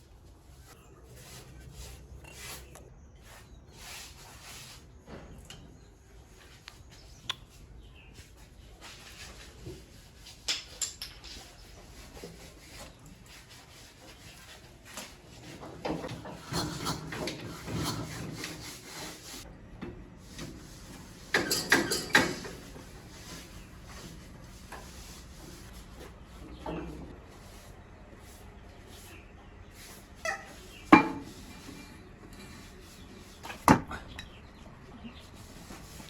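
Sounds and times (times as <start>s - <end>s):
scraping and rubbing metal parts: 8.9s - 19.4s, 20.2s - 36.0s.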